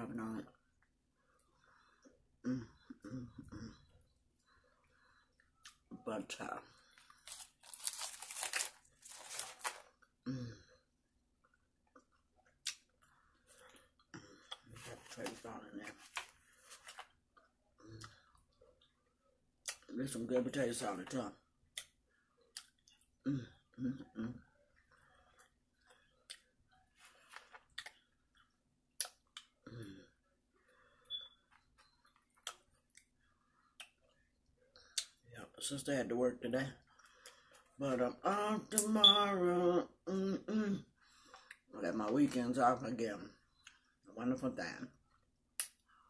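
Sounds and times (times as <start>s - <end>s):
mouth clicks and smacks: 11.9s - 12.9s, 21.7s - 23.1s, 29.0s - 29.6s, 32.0s - 33.1s, 34.8s - 35.2s, 45.5s - 45.9s.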